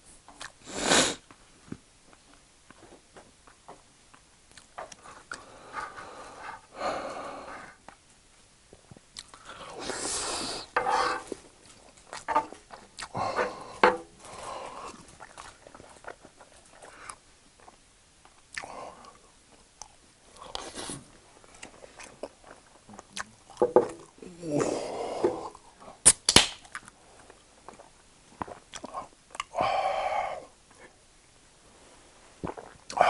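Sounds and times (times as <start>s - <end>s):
close chewing and mouth sounds: 0.3s - 0.6s, 2.1s - 6.7s, 8.7s - 24.3s, 25.5s - 29.6s, 32.4s - 33.0s.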